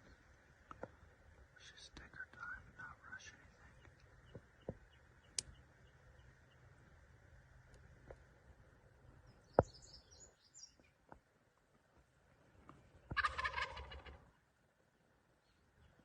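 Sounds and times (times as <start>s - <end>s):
turkey gobbling: 13.1s - 14.3s.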